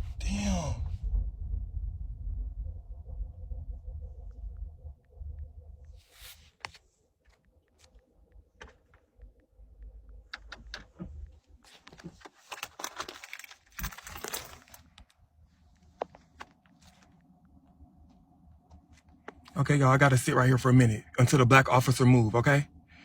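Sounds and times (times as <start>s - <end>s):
low rumble: 0.0s - 11.6s
handling clicks and rustles: 10.0s - 17.2s.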